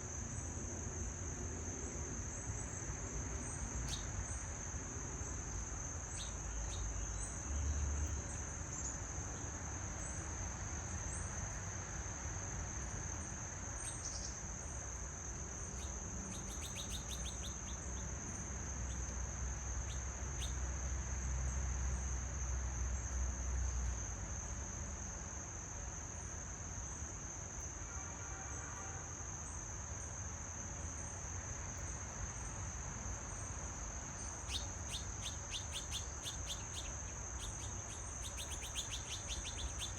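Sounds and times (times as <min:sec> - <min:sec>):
high insect chorus trilling: 0:00.0 - 0:39.9
bird chirps: 0:15.8 - 0:17.8, 0:34.4 - 0:39.9.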